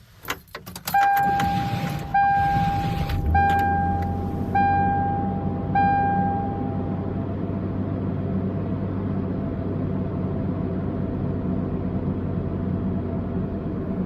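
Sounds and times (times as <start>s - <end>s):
dashboard warning chime: 0.8s - 7.2s
car engine idling: 1.1s - 14.0s.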